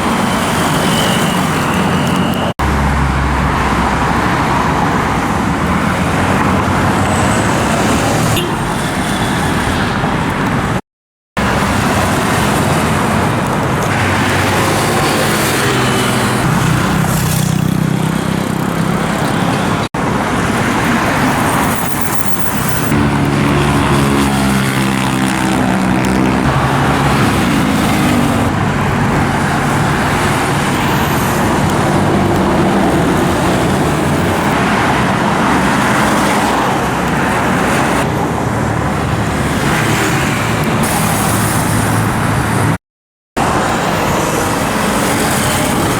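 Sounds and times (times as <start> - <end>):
cars passing: 0.0 - 10.8, 11.4 - 42.8, 43.4 - 45.9
motorcycles passing: 0.0 - 10.8, 11.4 - 42.8, 43.4 - 45.9.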